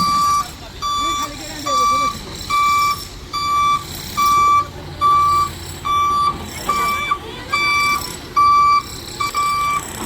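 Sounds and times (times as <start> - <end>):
diesel engine running: 0.0 - 10.0
reversing alarm beeping: 0.0 - 10.0.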